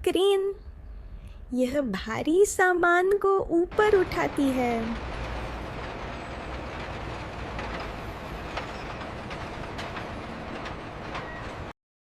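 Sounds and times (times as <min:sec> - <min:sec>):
heavy machinery rumble: 0:03.6 - 0:11.8
faint clanks: 0:03.7 - 0:11.7.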